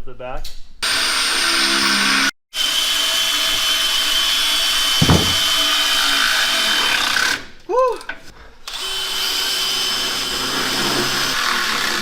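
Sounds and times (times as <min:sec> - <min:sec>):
short low thump: 0:05.0 - 0:05.4
power drill drilling through plastic: 0:08.7 - 0:12.0.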